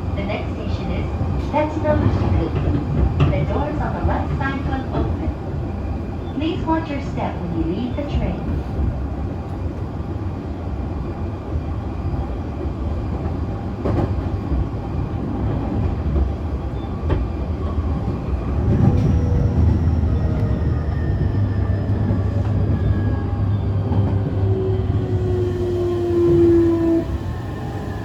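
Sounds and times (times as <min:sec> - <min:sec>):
train motors and wheels rumbling: 0:00.0 - 0:28.0
rail joint clicks: 0:01.4 - 0:05.3, 0:13.2 - 0:23.2.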